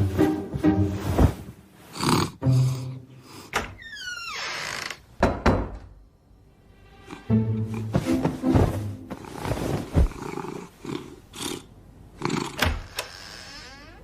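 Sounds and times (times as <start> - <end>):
dull thuds: 7.9 - 10.3.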